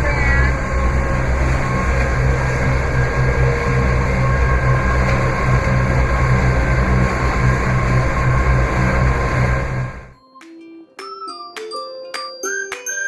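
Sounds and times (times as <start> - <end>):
diesel engine droning: 0.0 - 10.2
faint whining tones: 0.0 - 10.2.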